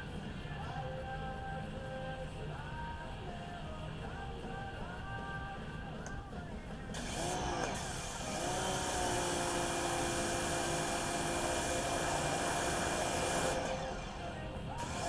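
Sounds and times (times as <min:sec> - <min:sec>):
motor running with rushing hiss: 0:06.9 - 0:15.0.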